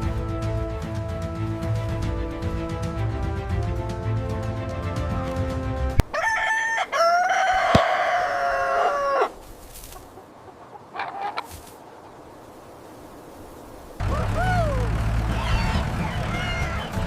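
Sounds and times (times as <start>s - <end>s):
rooster crowing: 6.0s - 9.4s.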